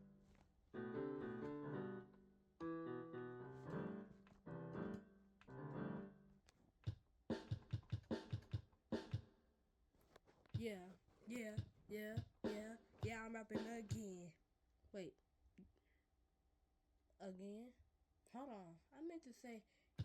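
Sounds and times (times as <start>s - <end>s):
electric piano chords: 0.0s - 6.4s.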